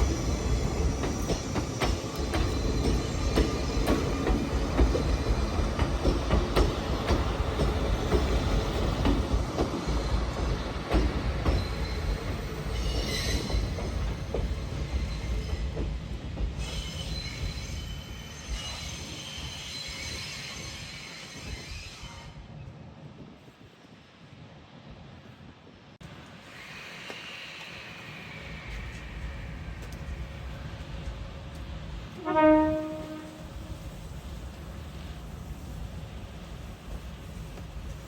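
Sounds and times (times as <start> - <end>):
train wheels squealing: 0.0 - 22.7, 26.4 - 30.8.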